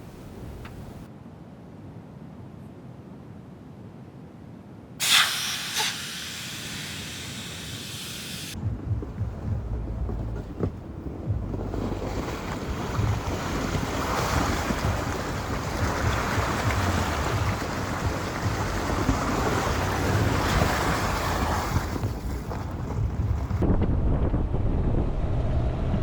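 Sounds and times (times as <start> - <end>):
strong gusty wind: 5.0 - 26.0
wind buffeting microphone: 8.5 - 26.0.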